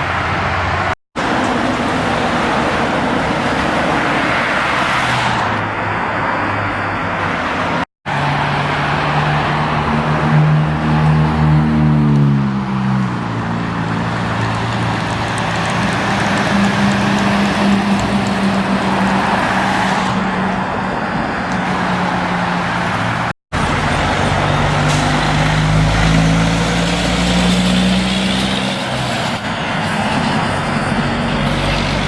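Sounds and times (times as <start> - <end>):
heavy truck engine drone: 0.0 - 32.0
tyre and traffic noise: 0.0 - 32.0.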